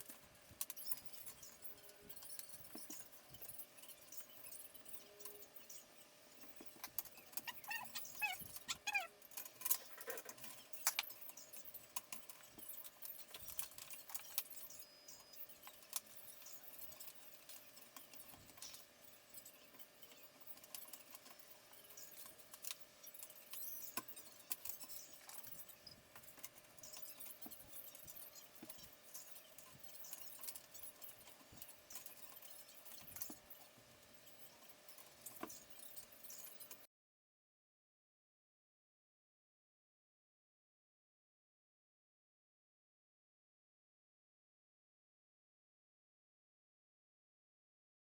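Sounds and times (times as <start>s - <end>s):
short high squeaks: 7.2s - 9.2s.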